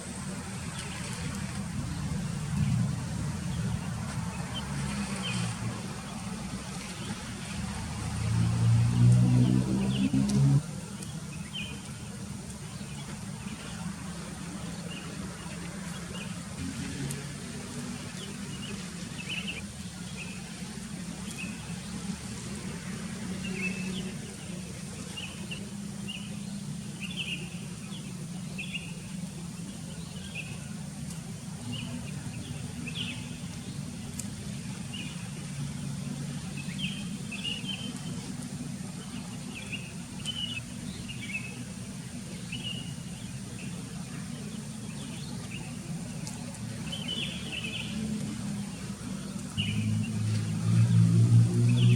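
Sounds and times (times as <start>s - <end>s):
steady low rumble: 0.0s - 15.4s.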